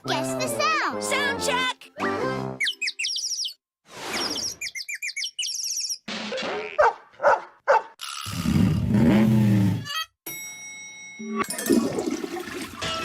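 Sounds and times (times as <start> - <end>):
dog barks: 6.8 - 8.0.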